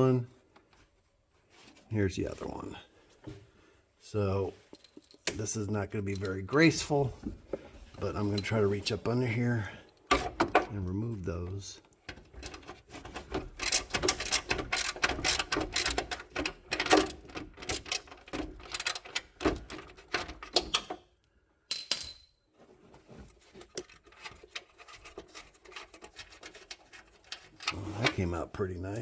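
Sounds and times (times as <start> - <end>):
hand tool clicking and knocking: 12.1 - 21.0.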